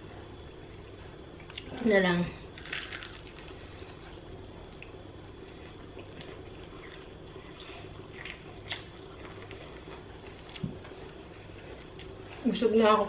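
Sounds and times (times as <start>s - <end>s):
steady low hum: 0.0s - 13.0s
person chewing: 2.6s - 12.4s.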